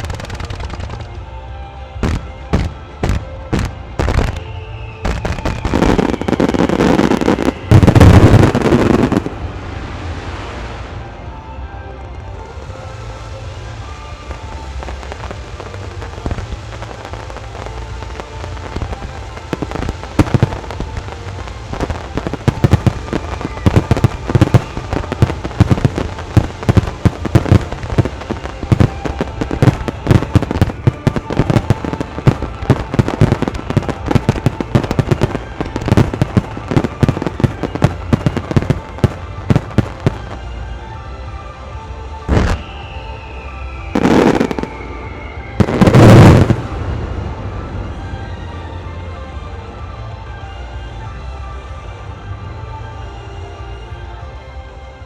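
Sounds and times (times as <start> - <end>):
fireworks bursting: 0.0 - 1.2, 2.0 - 11.0, 12.3 - 40.6, 42.3 - 43.1, 44.0 - 47.0
music playing: 0.0 - 55.0.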